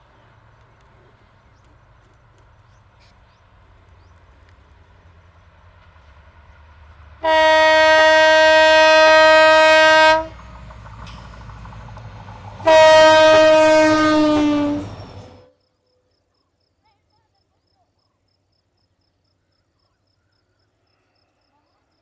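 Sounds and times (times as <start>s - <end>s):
train rumble: 0.0s - 15.5s
locomotive horn blasts: 7.2s - 10.4s, 12.6s - 15.4s.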